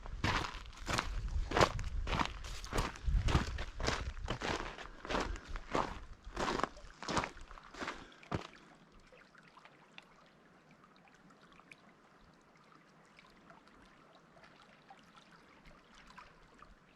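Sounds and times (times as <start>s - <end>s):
footsteps: 0.0s - 8.5s
water lapping and trickling: 0.0s - 16.9s.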